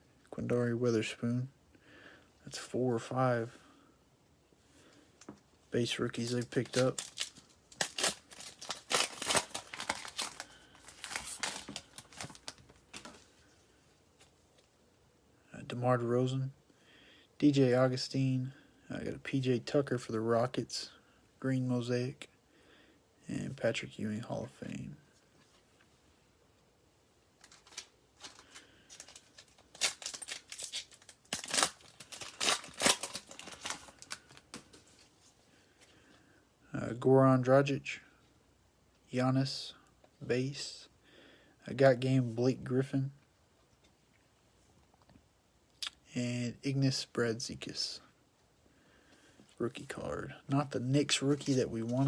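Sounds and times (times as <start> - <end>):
foil wrapper crinkling and tearing: 6.1 - 13.3, 27.4 - 34.7.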